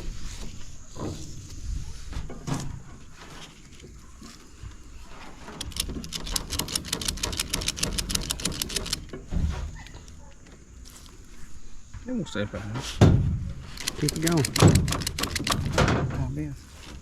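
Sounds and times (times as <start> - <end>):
ratchet clicking: 5.6 - 9.1, 13.7 - 15.8.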